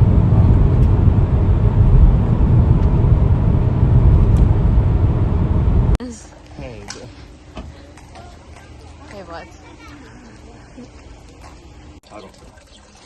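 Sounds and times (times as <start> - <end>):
car road and engine rumble: 0.0 - 6.0.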